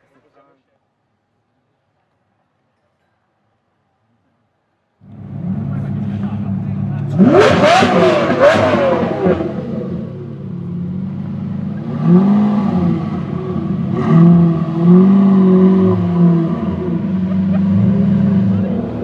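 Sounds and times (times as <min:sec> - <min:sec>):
car engine idling: 0:05.0 - 0:19.0
loud car engine revving: 0:05.0 - 0:19.0.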